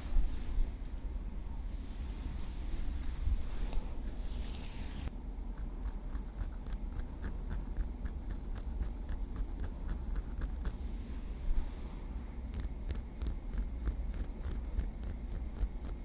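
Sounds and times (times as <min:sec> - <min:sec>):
soft scratchy hiss: 0:00.0 - 0:05.1, 0:08.4 - 0:15.1.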